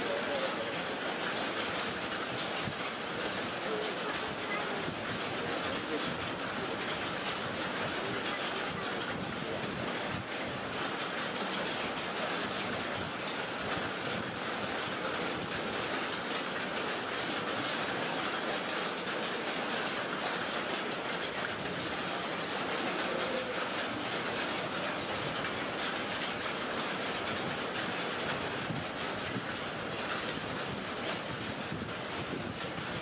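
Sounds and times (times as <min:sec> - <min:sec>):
heavy rain on lake and trees: 0:00.0 - 0:33.0.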